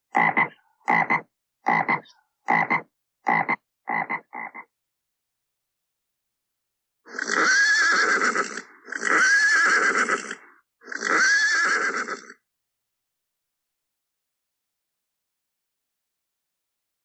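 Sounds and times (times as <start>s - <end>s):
horse whinnying: 7.1s - 12.4s.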